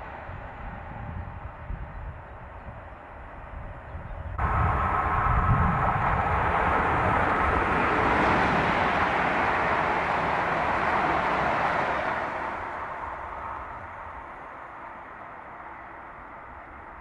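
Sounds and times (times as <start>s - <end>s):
train wheels rushing on rails: 4.4s - 17.0s.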